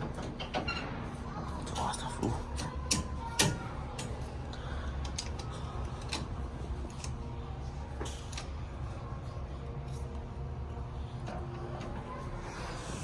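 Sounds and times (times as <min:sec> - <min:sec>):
low hum of indoor hall: 0:00.0 - 0:13.0.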